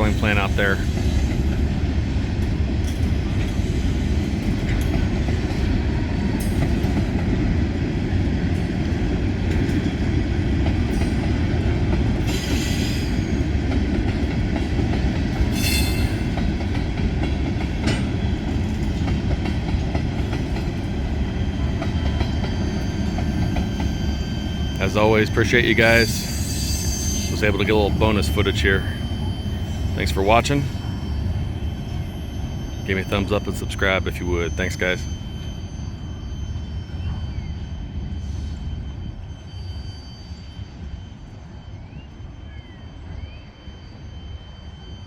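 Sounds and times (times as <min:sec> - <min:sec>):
train wheels rumbling on rail: 0:00.0 - 0:45.0
wheel squeals: 0:10.8 - 0:19.4, 0:20.2 - 0:45.0.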